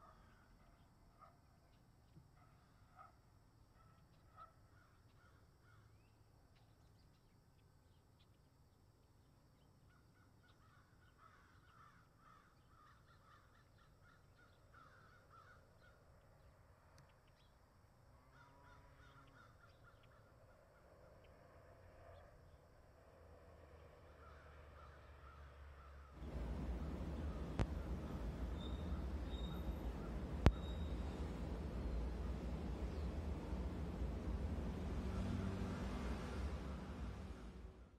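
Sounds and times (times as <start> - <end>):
faint bird calls: 9.6 - 16.4, 18.2 - 21.4, 24.1 - 34.2
faint low rumble: 26.2 - 37.9.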